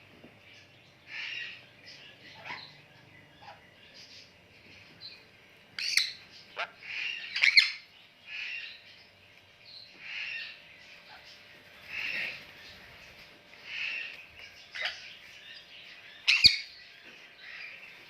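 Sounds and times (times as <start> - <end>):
parrot squawking: 2.3 - 2.8, 5.8 - 8.8, 13.7 - 15.1, 16.2 - 16.7.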